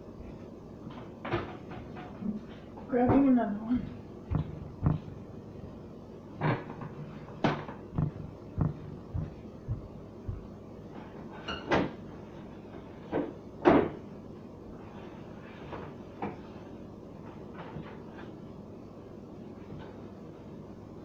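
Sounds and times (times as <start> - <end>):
refrigerator shelves knocking: 4.3 - 5.1, 7.5 - 10.5.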